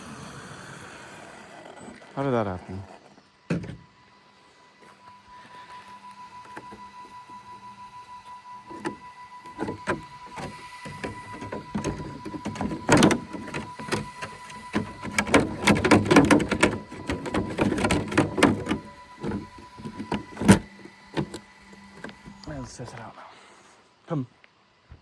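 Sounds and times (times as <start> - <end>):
faint steady high tone: 3.8 - 24.4
plastic clicks and rattles: 8.7 - 22.5.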